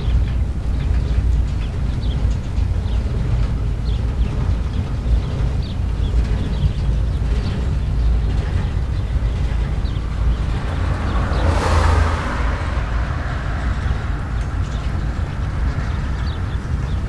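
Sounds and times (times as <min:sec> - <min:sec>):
freight train rumbling past: 0:00.0 - 0:17.0
car driving by: 0:09.0 - 0:17.0.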